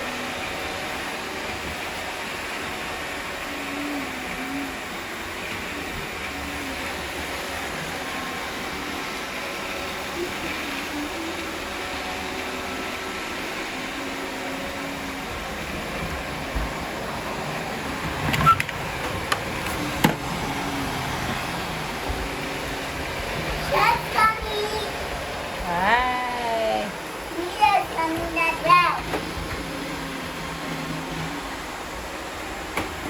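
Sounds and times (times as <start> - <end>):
robot vacuums whirring: 0.0 - 33.0.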